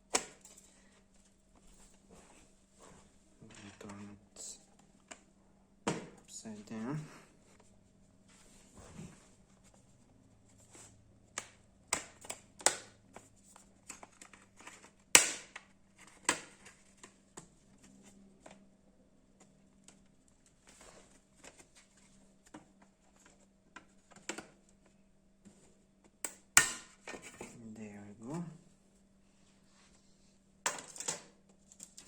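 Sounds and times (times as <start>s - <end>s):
laptop cover clicks and knocks: 11.4s - 13.0s, 13.9s - 16.8s.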